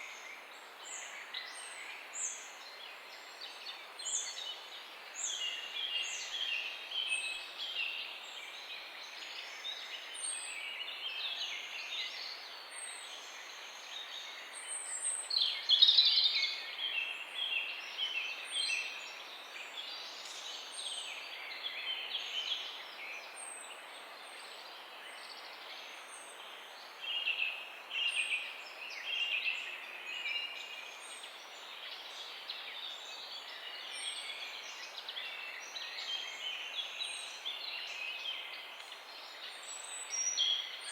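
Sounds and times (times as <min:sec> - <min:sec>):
birds chirping and twittering: 0:12.2 - 0:40.9.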